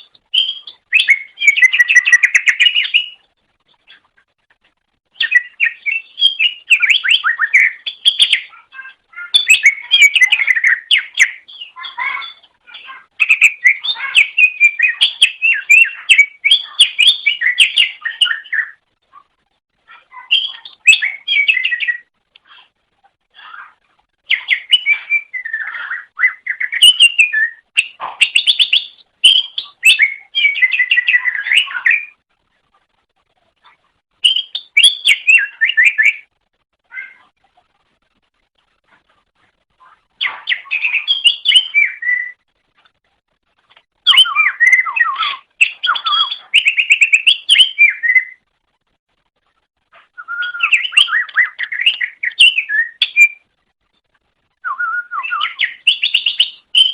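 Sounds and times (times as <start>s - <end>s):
bird chirping and whistling: 0.3s - 3.2s, 5.2s - 18.8s, 20.2s - 22.1s, 24.3s - 32.2s, 34.2s - 36.3s, 40.2s - 42.4s, 44.0s - 48.4s, 50.2s - 53.4s, 54.6s - 56.9s.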